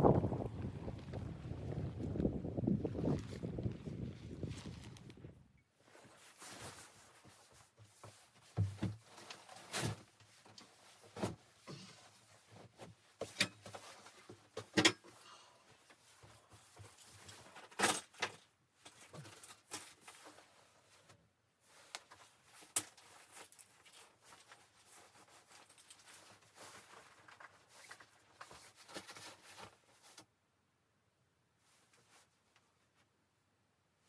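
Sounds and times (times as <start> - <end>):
objects knocking and clunking: 8.6 - 9.1.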